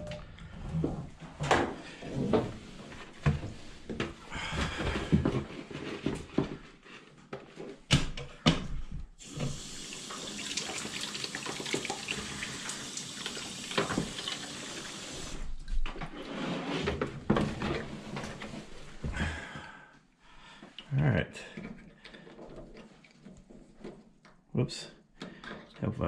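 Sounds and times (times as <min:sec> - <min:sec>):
water running from a hose: 0:09.2 - 0:15.4.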